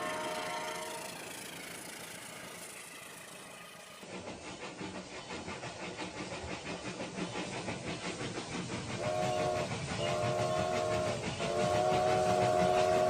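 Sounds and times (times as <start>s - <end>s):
recorded steam whistle: 0.0s - 1.7s, 8.9s - 13.0s
toy train chuffing: 0.0s - 13.0s.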